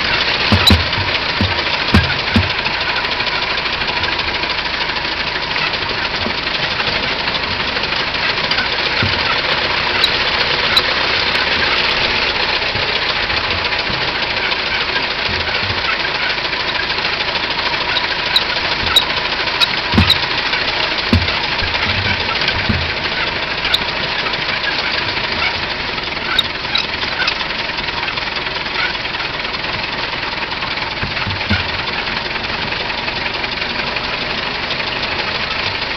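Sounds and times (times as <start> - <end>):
short low thumps: 0.0 - 2.7, 19.8 - 23.9
car engine running: 0.0 - 35.9.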